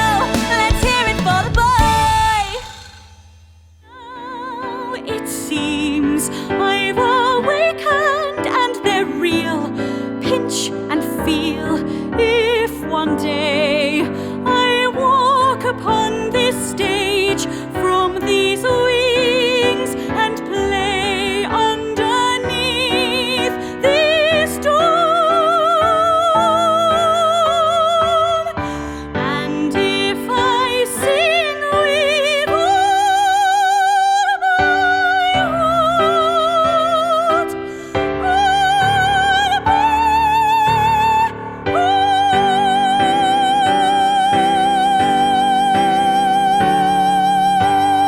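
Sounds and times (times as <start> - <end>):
woman singing operatically: 0.0 - 2.9, 3.9 - 48.0
instrumental accompaniment: 0.0 - 7.5.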